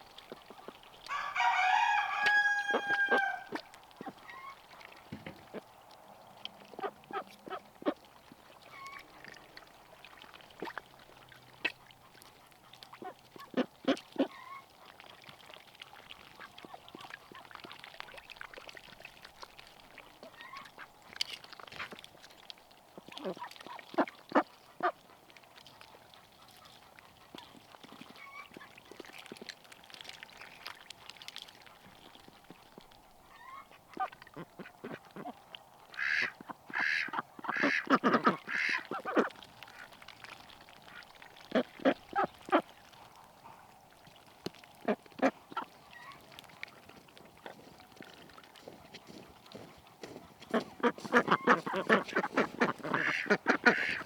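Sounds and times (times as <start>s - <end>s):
ducks quacking: 6.5s - 8.0s, 12.9s - 14.7s, 33.3s - 39.9s, 41.4s - 43.7s, 44.8s - 54.0s.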